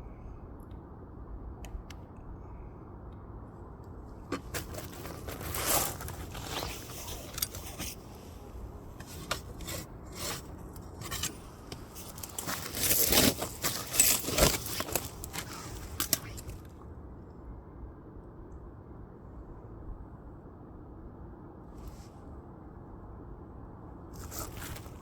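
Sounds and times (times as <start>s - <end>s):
firewood scraping and clattering: 4.3s - 16.6s, 24.2s - 25.0s.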